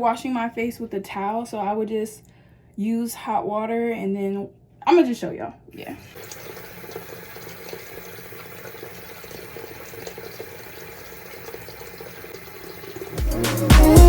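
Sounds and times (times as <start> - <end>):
tap running into sink: 6.2 - 14.0.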